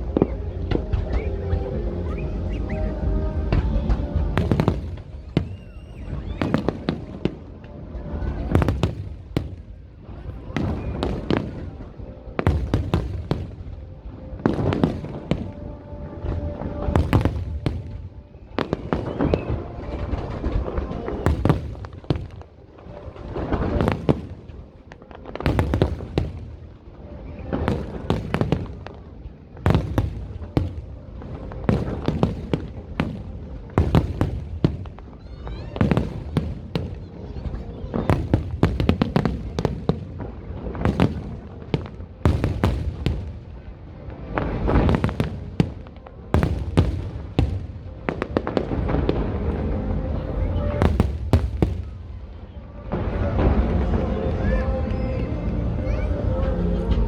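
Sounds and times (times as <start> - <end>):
deep fireworks booms: 0.0 - 54.4
fireworks bangs and crackles: 0.0 - 55.3.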